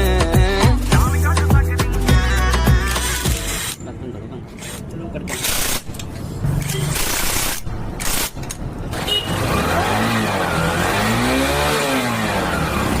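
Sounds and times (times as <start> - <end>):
motorcycle engine revving: 8.9 - 13.0.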